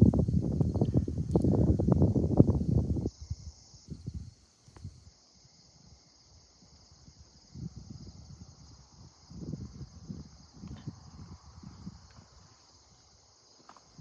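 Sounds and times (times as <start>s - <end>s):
wind buffeting microphone: 0.0s - 5.0s, 7.5s - 12.4s
crickets chirping: 0.0s - 14.0s.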